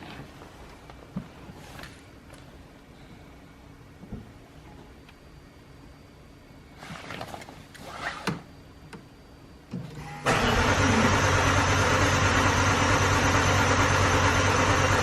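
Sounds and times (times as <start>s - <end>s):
car starter cranking: 10.2s - 15.0s.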